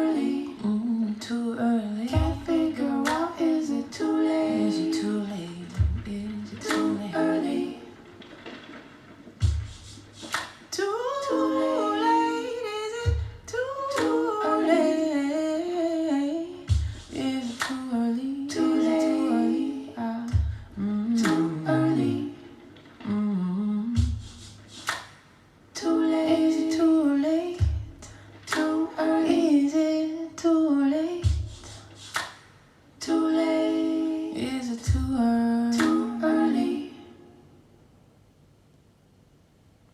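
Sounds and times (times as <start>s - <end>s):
wordless a cappella singing: 0.0s - 37.7s
low thump beat: 2.2s - 3.8s, 5.8s - 7.7s, 9.4s - 10.4s, 13.1s - 14.2s, 16.7s - 17.2s, 20.3s - 21.7s, 24.0s - 24.7s, 27.6s - 28.2s, 31.2s - 31.9s, 34.9s - 35.2s
sharp clap-like hit: 3.0s - 3.4s, 8.1s - 10.8s, 16.7s - 17.9s, 21.2s - 21.6s, 24.1s - 25.5s, 31.2s - 32.7s, 35.8s - 36.1s.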